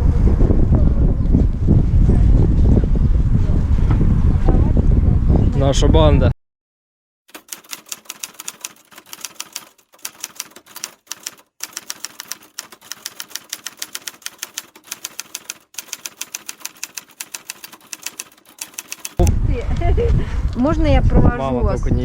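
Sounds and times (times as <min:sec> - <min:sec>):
rapid keystroke clicks: 0:07.3 - 0:19.3.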